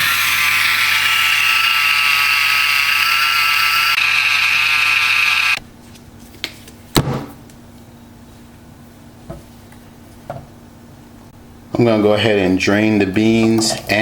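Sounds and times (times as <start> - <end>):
electric can opener whining: 0.0 - 5.6.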